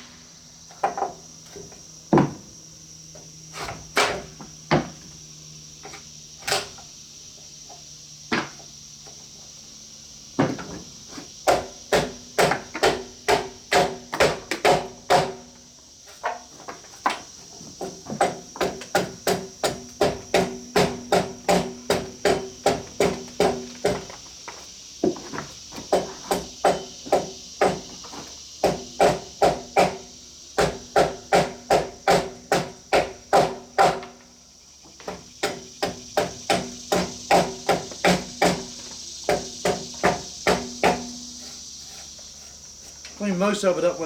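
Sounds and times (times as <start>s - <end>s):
sharp blows on wood: 11.4s - 15.6s, 18.2s - 24.1s, 25.9s - 27.9s, 28.6s - 34.2s, 35.1s - 43.0s.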